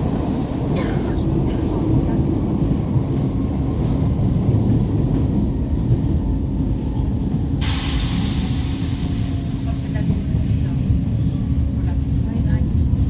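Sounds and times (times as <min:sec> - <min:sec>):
metro train rumbling: 0:00.0 - 0:13.0
loud air hiss: 0:07.6 - 0:10.1.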